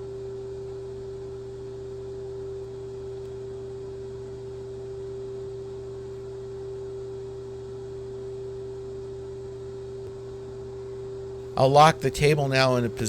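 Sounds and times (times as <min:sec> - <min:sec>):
electrical machine hum: 0:00.0 - 0:13.0.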